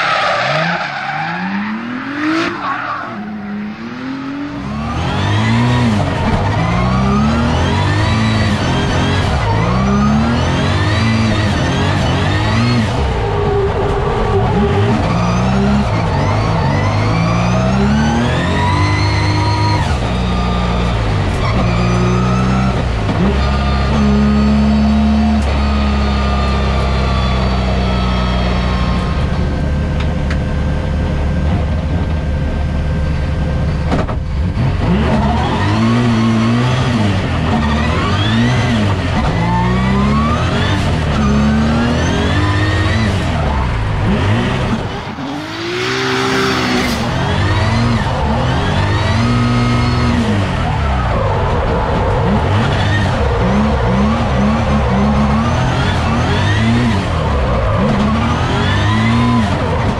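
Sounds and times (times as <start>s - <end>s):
car engine revving hard: 0.0s - 29.2s, 34.4s - 59.9s.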